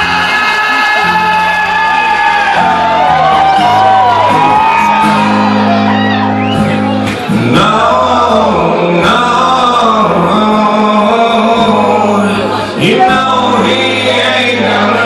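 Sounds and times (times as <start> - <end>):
guitar accompaniment: 0.0 - 15.0
man singing long notes: 7.4 - 15.0.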